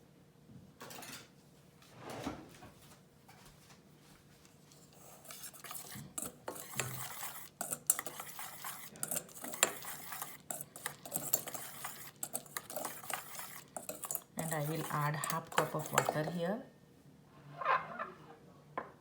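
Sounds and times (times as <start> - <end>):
spoon stirring and scraping bowl: 4.7 - 16.6
spoon clinking against bowl: 5.6 - 16.4.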